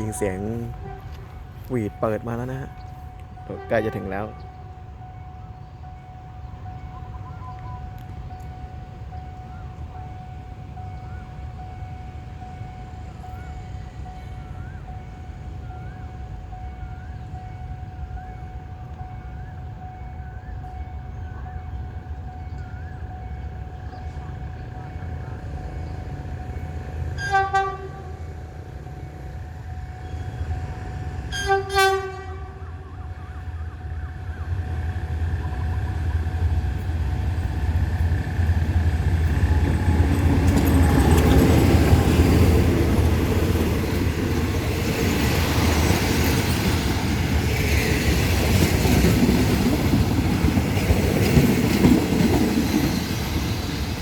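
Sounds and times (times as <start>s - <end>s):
locomotive horn blasts: 0.0s - 1.5s, 3.4s - 4.6s, 27.2s - 28.3s, 31.2s - 33.3s
train rumbling: 0.0s - 54.0s.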